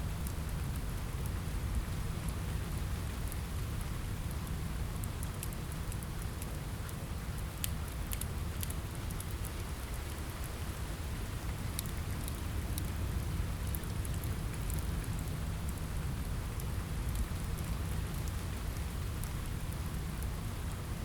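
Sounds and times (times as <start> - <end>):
rain on a window: 0.0 - 21.0
wood fire crackling: 0.1 - 21.0.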